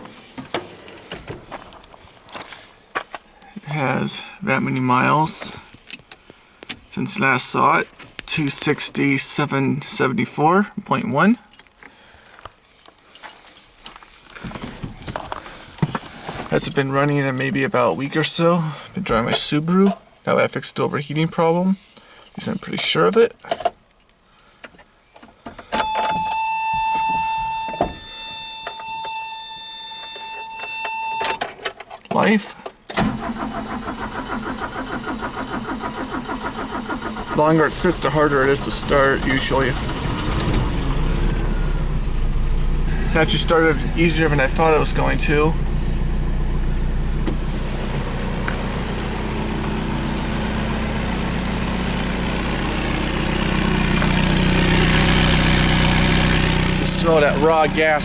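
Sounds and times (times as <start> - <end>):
warning buzzer high tone: 25.8 - 31.4
pickup engine idling: 33.2 - 58.0.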